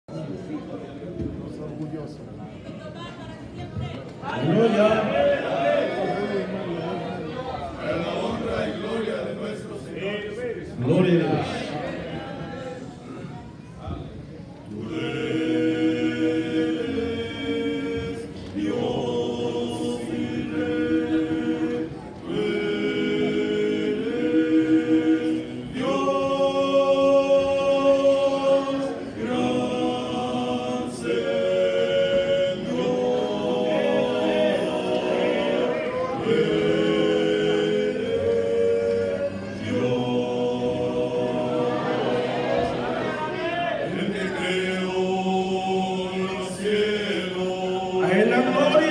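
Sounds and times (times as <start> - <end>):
choir singing a cappella: 4.5 - 9.9, 14.7 - 48.9.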